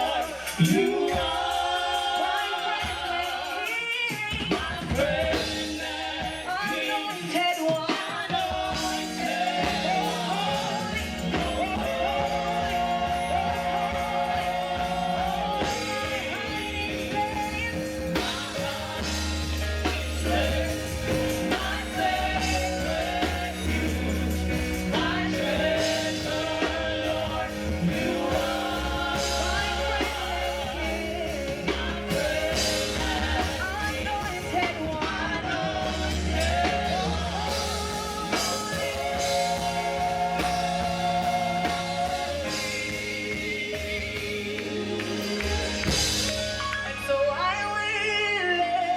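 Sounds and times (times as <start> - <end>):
group singing worship song: 0.0 - 48.9
live band playing: 0.0 - 48.9
sustained bass notes: 9.6 - 48.1.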